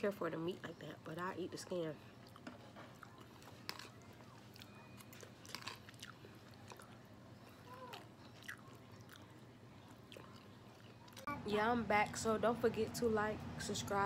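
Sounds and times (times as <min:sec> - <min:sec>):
person chewing crispy food: 0:02.1 - 0:11.3.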